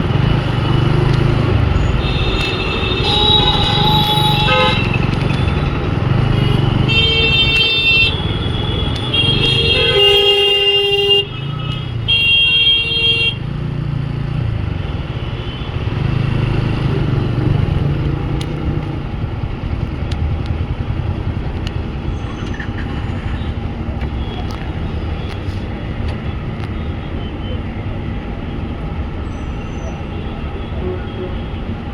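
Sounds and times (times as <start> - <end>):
motorcycle engine and road rumble: 0.0 - 29.3
vehicle horns honking: 1.7 - 13.4.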